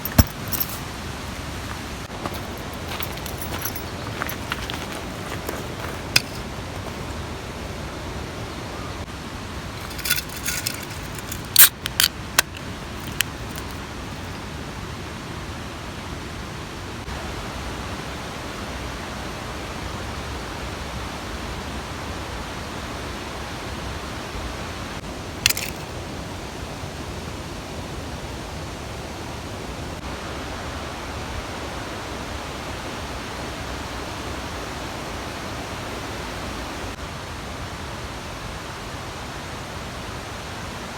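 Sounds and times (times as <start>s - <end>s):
mountain stream rushing: 0.0s - 21.4s.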